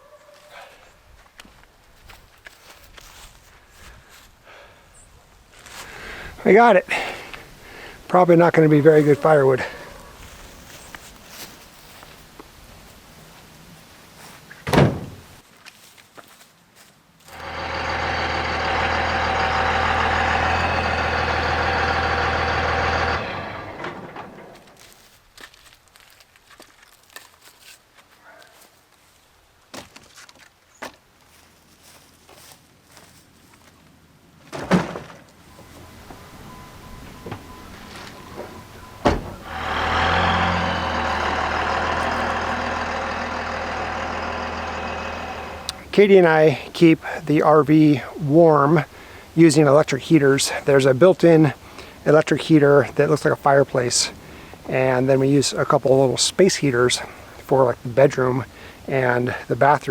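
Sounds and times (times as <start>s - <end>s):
engine running steadily: 17.3s - 24.9s, 35.5s - 45.9s.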